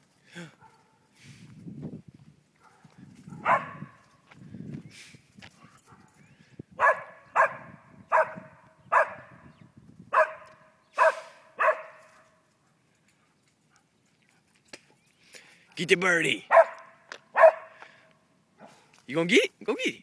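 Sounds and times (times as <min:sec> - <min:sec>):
dog barking: 0:02.6 - 0:04.0, 0:06.8 - 0:09.4, 0:10.1 - 0:12.8, 0:16.4 - 0:17.8, 0:18.6 - 0:18.9.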